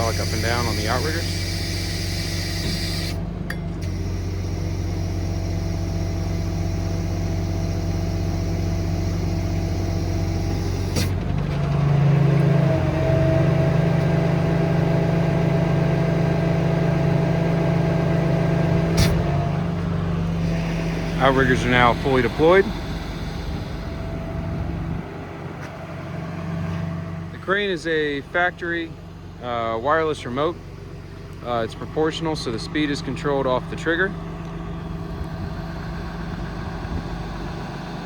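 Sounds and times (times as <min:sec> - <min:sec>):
steady hydraulic whine: 0:00.0 - 0:14.4, 0:17.1 - 0:28.9, 0:34.7 - 0:38.0
diesel engine running: 0:00.0 - 0:38.0.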